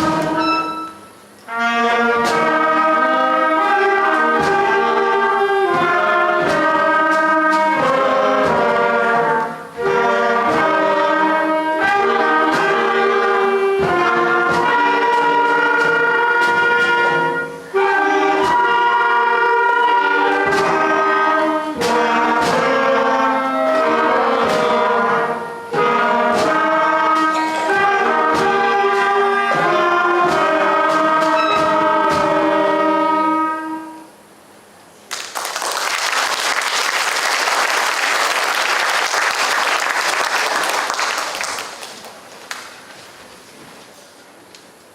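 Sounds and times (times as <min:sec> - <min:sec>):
concert band playing: 0:00.0 - 0:34.3.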